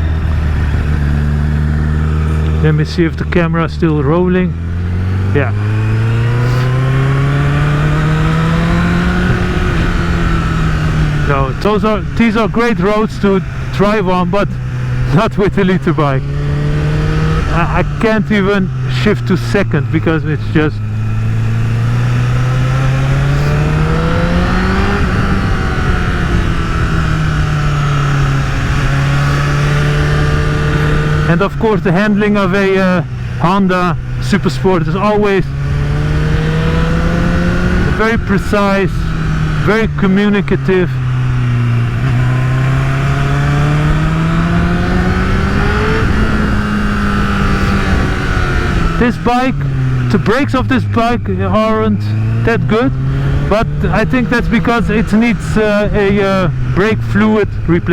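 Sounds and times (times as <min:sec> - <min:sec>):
motorcycle engine accelerating: 0:00.0 - 0:57.9
wind noise on microphone: 0:20.9 - 0:31.3, 0:41.0 - 0:50.1.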